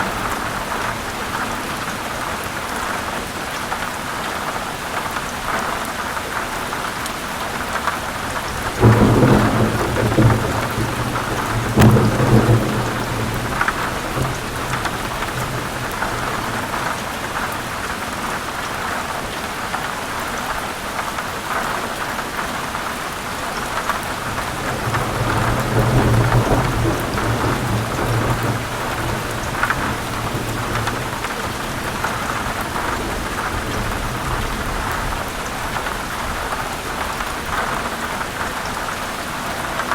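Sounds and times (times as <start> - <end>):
heavy rain on leaves: 0.0 - 39.9
thunder rumbling: 8.4 - 17.6, 24.2 - 36.5
sharp thunder crack: 8.8 - 16.6.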